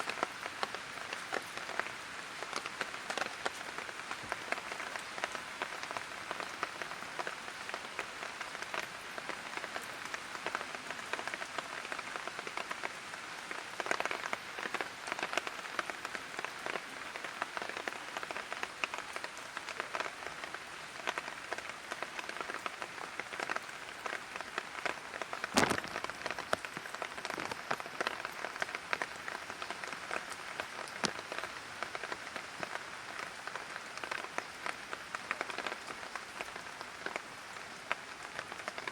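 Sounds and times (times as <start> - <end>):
light rain on hard surface: 0.0 - 38.9.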